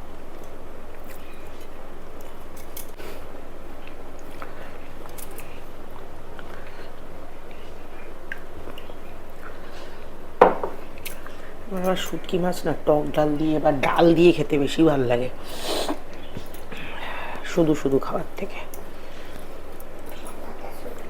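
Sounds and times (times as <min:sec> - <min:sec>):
steady background hiss: 0:00.0 - 0:21.0
person chewing: 0:00.2 - 0:12.4.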